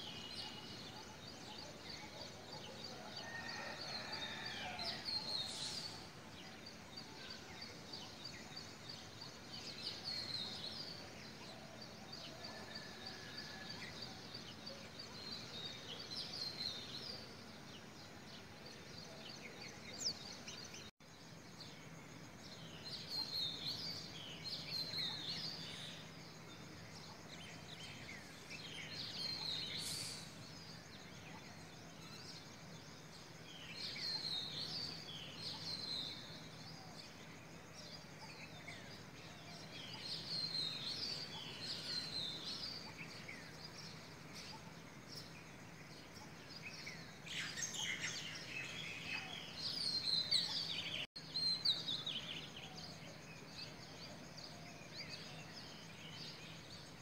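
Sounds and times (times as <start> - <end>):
birds chirping and singing: 22.5 - 57.0.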